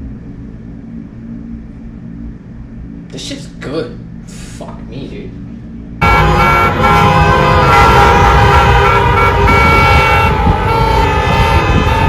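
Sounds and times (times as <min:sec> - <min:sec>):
city street traffic: 0:00.0 - 0:12.0
car horns honking: 0:06.0 - 0:12.0.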